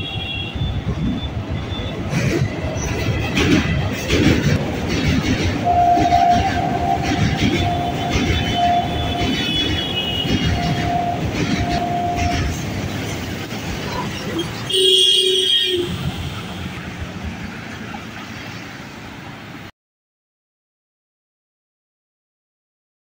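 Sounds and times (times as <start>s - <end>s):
train wheels on bridge: 0.0s - 19.7s
bus horn blast: 5.6s - 12.6s, 14.4s - 16.8s
high tone: 5.6s - 12.6s.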